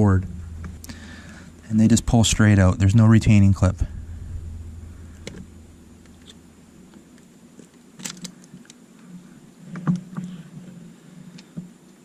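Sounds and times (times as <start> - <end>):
small plastic parts clicking: 7.6 - 8.8.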